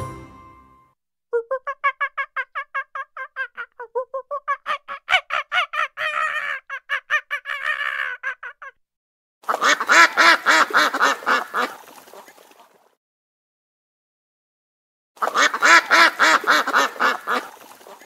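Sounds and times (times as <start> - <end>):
duck honking: 9.5 - 11.8, 15.2 - 17.5.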